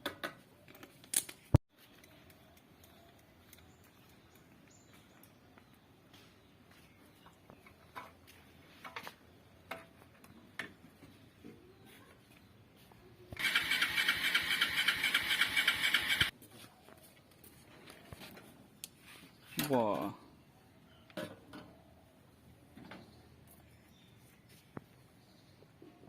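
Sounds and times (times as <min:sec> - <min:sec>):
small motor pulsing buzz: 0:13.4 - 0:16.3.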